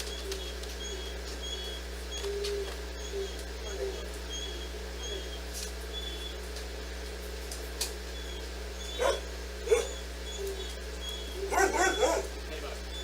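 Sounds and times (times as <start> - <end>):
steady low hum: 0.0 - 13.0
dog barking: 8.9 - 10.7, 11.3 - 12.4.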